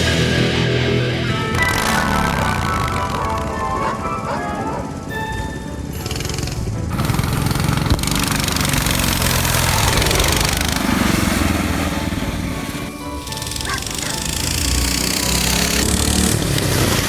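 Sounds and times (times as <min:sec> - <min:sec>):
mini bike engines running: 0:01.3 - 0:17.0.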